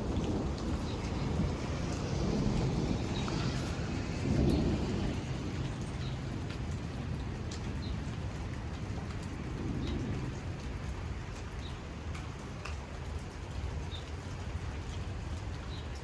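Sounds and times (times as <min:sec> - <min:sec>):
wind gusting against microphone: 0:00.0 - 0:12.6
rain ticking on surfaces: 0:00.0 - 0:16.0.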